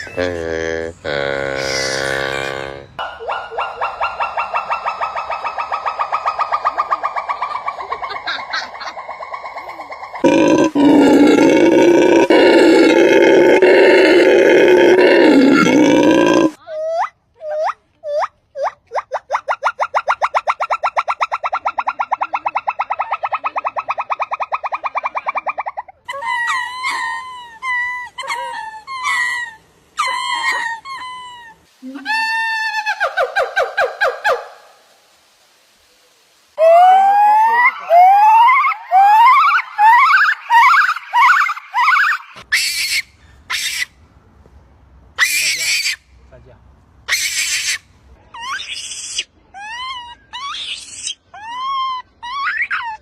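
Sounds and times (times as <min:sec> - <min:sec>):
monkey calling: 0:01.1 - 0:34.6, 0:36.6 - 0:44.0, 0:45.2 - 0:46.1, 0:47.1 - 0:53.0
monkey squealing: 0:37.1 - 0:43.9, 0:45.2 - 0:46.0, 0:47.1 - 0:47.8, 0:48.4 - 0:53.0.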